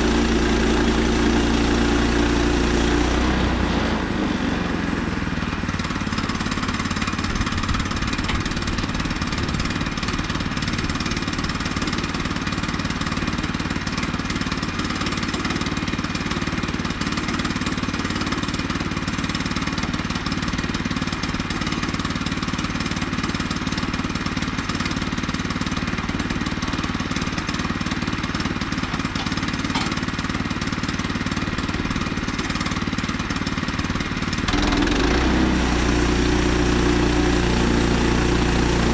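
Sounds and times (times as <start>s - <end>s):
small gasoline engine running: 0.0s - 38.9s
saw blade cutting log: 28.7s - 30.3s, 34.4s - 38.9s.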